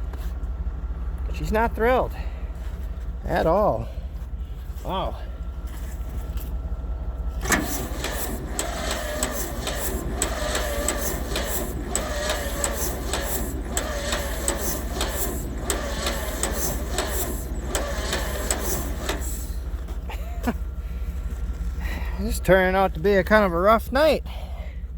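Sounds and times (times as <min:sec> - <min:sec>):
starter whine: 0:04.2 - 0:23.6
starter cranking engine: 0:07.4 - 0:20.4.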